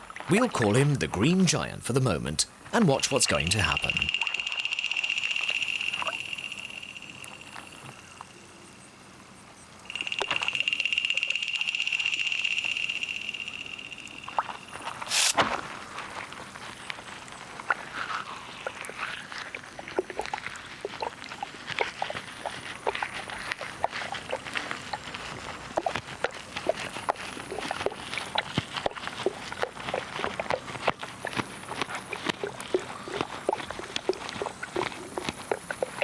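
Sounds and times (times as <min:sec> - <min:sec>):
insect larvae chewing underwater: 0:02.8 - 0:36.0
steady high trill: 0:02.9 - 0:08.2, 0:09.9 - 0:15.2.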